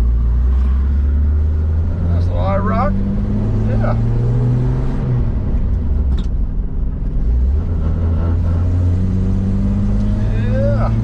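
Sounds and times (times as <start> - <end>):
car engine running: 0.0 - 11.0
road noise: 0.0 - 11.0.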